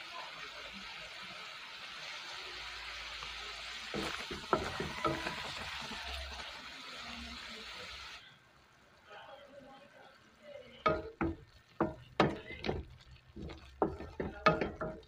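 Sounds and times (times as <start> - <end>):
bubbling sizzle in a wok: 0.0 - 15.0
wooden spatula scraping a pan: 3.9 - 5.9, 10.9 - 15.0.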